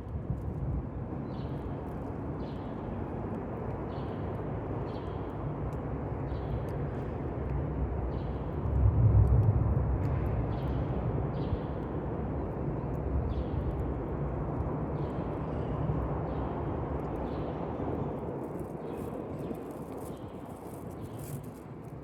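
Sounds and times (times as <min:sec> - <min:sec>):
low rumble: 0:08.6 - 0:11.4.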